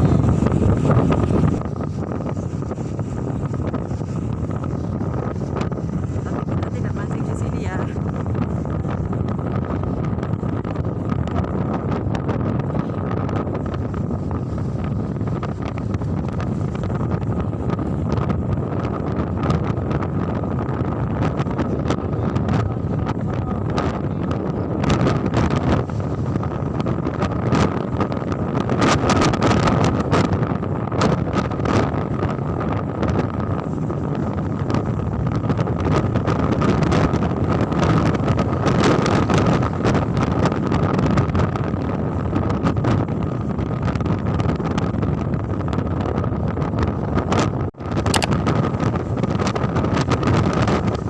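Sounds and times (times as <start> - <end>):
low rumble: 0.0 - 27.0
wind buffeting microphone: 0.0 - 51.0.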